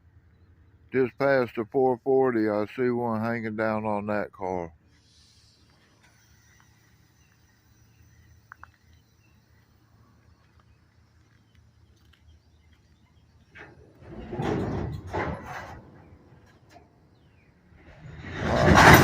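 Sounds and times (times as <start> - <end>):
train couplers clanking: 13.1 - 19.0.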